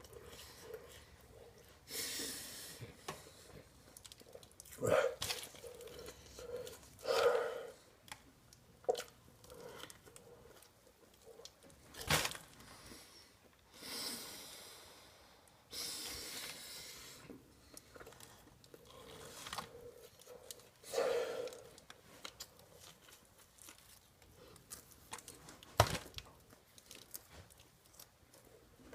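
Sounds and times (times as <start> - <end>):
man chewing food: 0.0 - 13.7, 16.2 - 28.9
man grunting: 4.8 - 5.2
heavy breathing: 4.8 - 8.0, 18.8 - 21.8.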